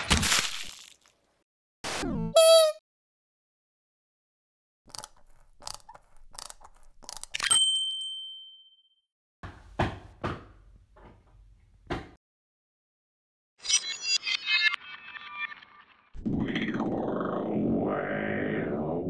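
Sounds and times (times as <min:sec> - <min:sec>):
bright bell-like ding: 0:07.5 - 0:08.9.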